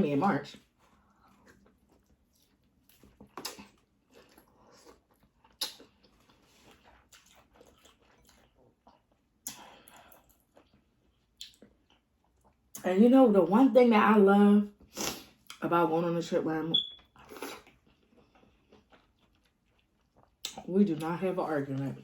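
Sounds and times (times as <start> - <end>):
close chewing and eating: 0.4 - 12.8, 16.8 - 22.0.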